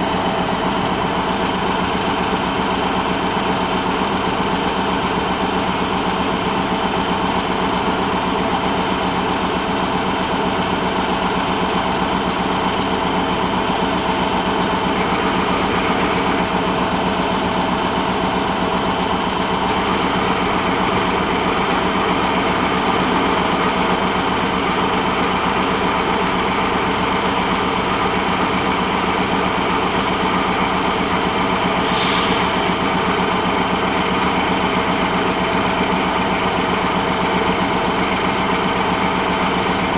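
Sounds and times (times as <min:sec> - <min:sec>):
heavy engine idling: 0:00.0 - 0:39.9
short hiss: 0:31.8 - 0:32.6.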